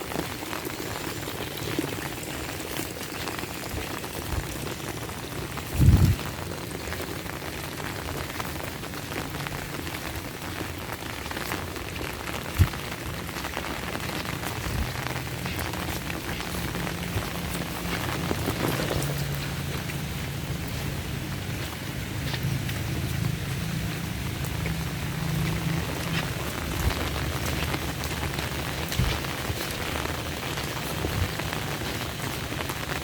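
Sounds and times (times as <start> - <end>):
heavy rain: 0.0 - 33.0.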